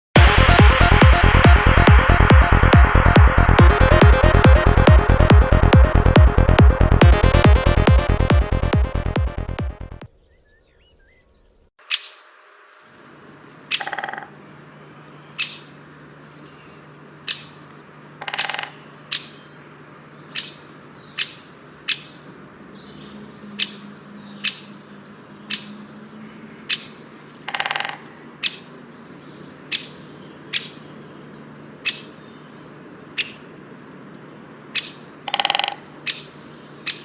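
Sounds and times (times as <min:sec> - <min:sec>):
steady low hum: 0:00.2 - 0:10.0
bird chirping: 0:10.1 - 0:12.4, 0:15.0 - 0:27.7, 0:28.4 - 0:33.4, 0:34.1 - 0:37.0
harsh bird calls: 0:13.7 - 0:33.5, 0:34.2 - 0:37.0.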